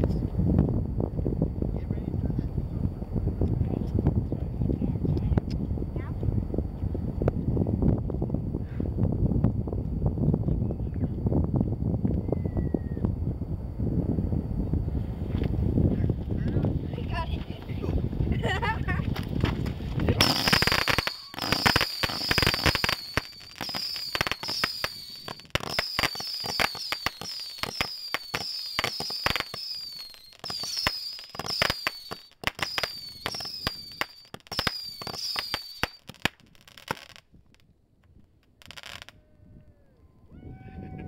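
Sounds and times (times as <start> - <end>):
firework whistles falling in pitch: 12.0 - 13.1, 20.2 - 37.2, 38.6 - 39.1
firework cracks and pops: 19.0 - 39.1.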